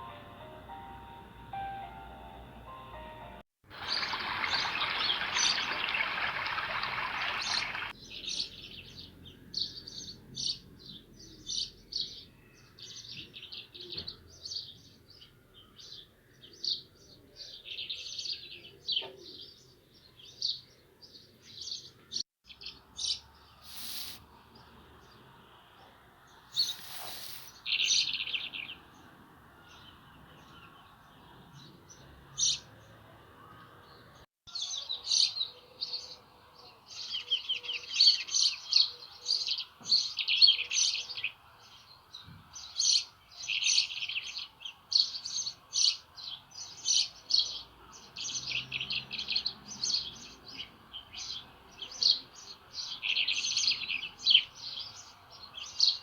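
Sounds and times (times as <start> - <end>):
flowing water: 3.6 - 7.9
small birds chirping: 3.7 - 56.0.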